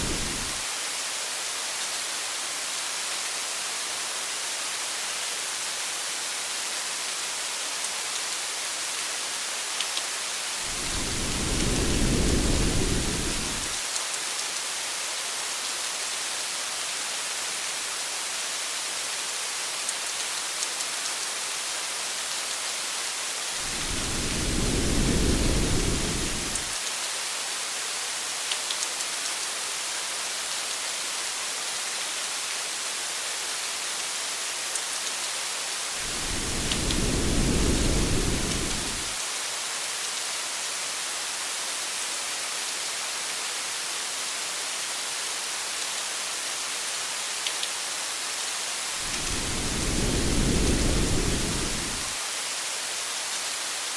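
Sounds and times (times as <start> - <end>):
rain drops ticking: 0.0 - 0.6, 10.6 - 14.6, 23.6 - 26.8, 36.0 - 39.2, 49.0 - 52.2
thunder rumbling: 0.0 - 0.6, 10.7 - 13.8, 23.6 - 26.7, 36.0 - 39.2, 49.0 - 52.2
rain falling on a car: 9.8 - 14.7, 36.0 - 39.2.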